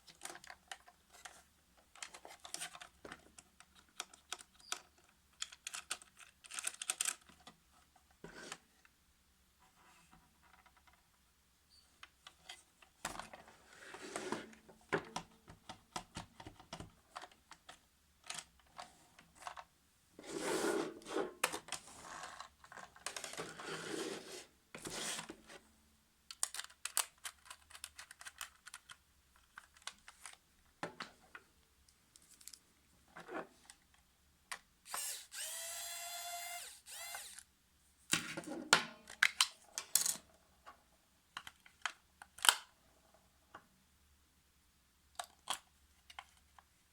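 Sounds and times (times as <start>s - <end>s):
plastic parts clicking and rattling: 0.0s - 7.6s, 15.0s - 19.7s, 26.3s - 31.1s, 41.3s - 42.7s, 45.1s - 46.7s
small electric motor whining: 34.9s - 37.4s.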